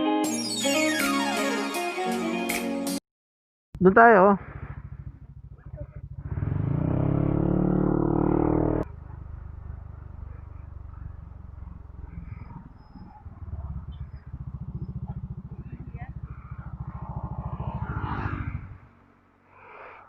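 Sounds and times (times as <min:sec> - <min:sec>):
motorcycle engine accelerating: 0:04.0 - 0:20.0.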